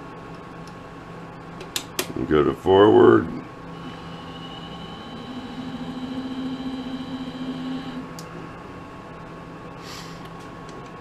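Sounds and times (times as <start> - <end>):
low hum: 2.1 - 9.7
lathe motor whine: 3.6 - 9.2.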